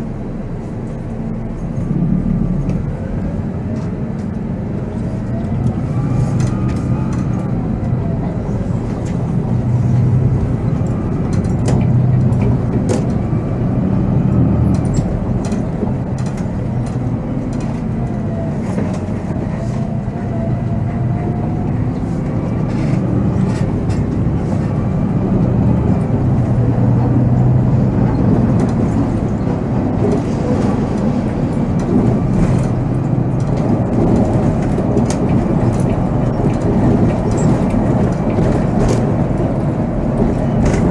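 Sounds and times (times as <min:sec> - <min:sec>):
diesel coach engine running: 0:00.0 - 0:40.9
rattles and clicks: 0:10.6 - 0:13.5, 0:14.7 - 0:19.5, 0:28.0 - 0:40.9.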